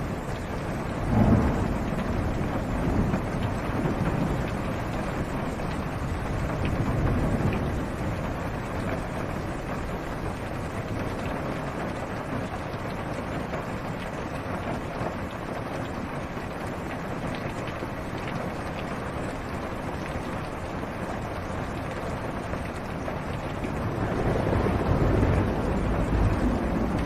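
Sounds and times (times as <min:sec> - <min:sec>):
rain on car roof: 0:00.0 - 0:27.0
thunder rumble: 0:00.6 - 0:09.8, 0:23.6 - 0:27.0.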